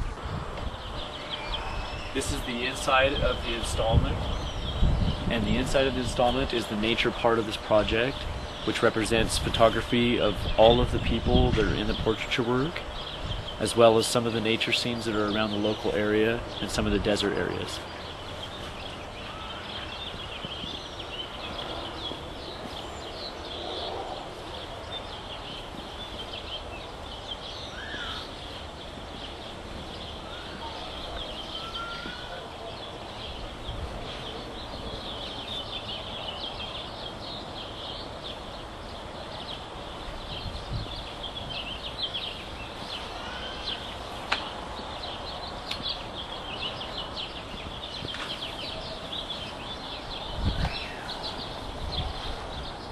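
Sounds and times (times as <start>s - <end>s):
small birds chirping: 0.0s - 52.9s
steady background hiss: 0.0s - 52.9s
whistled bird calls: 1.1s - 2.9s, 27.6s - 28.5s, 30.1s - 33.3s.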